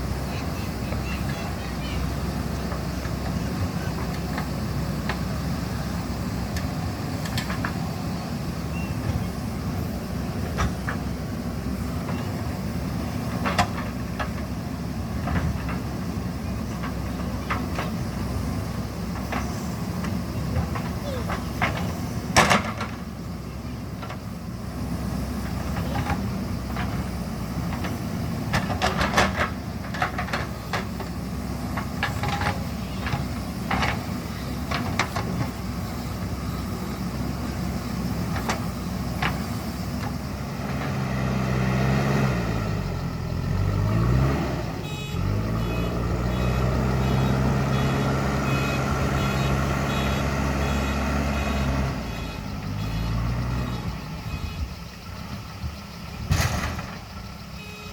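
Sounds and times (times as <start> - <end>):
diesel engine working: 0.0 - 57.9
metal clanks and knocks: 19.1 - 23.1, 27.7 - 31.1, 56.2 - 57.2
reversing alarm beeping: 44.8 - 55.0, 57.4 - 57.9.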